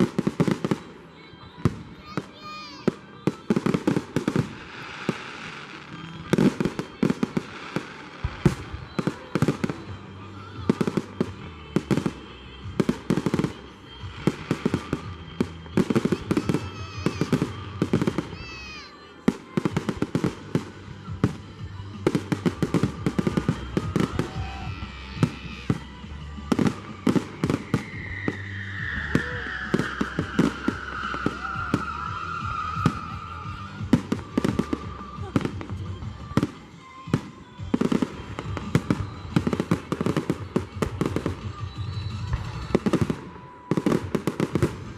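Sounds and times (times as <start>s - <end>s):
fireworks bangs and crackles: 0.0s - 44.9s
music: 0.0s - 44.9s
long falling whistle: 27.5s - 33.4s.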